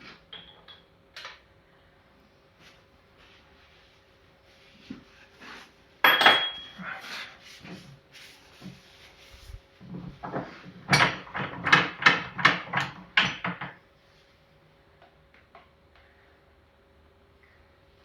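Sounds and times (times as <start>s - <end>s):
metal parts knocking and clinking: 6.1s - 6.8s, 10.9s - 13.8s
faint steady hum: 13.2s - 18.0s.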